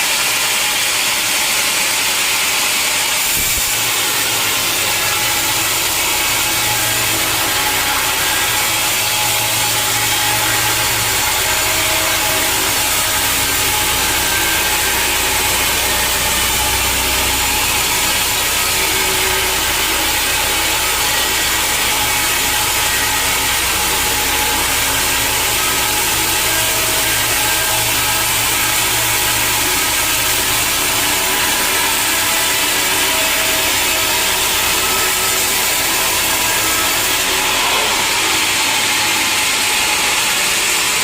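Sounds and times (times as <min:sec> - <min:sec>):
saw blade cutting wood: 0:00.0 - 0:41.0
machine motor hum: 0:00.8 - 0:41.0.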